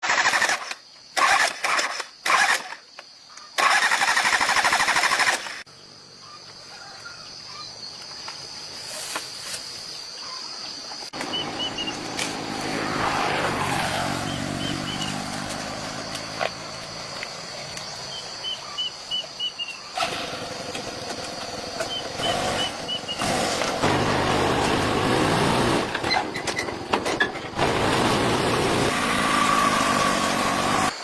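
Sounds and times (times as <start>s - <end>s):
faint bird chirps: 5.8s - 8.6s
small engine running in bursts: 20.0s - 31.0s.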